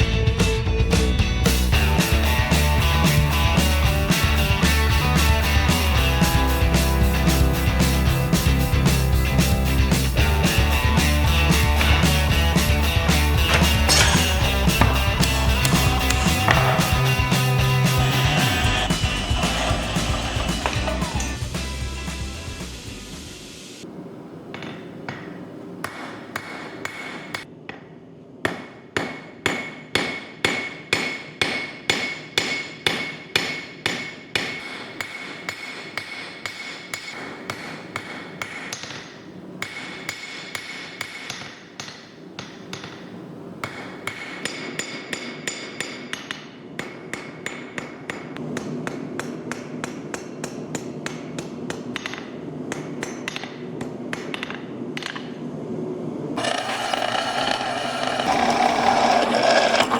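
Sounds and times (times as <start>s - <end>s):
steady low hum: 1.6s - 24.4s
hammer striking anvil: 11.6s - 21.4s, 28.5s - 43.0s.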